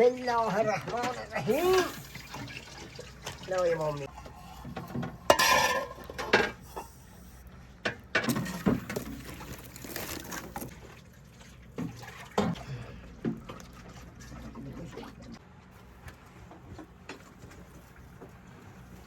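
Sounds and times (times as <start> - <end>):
pots and dishes clinking: 4.7 - 7.0
rustling or splashing: 8.3 - 19.0.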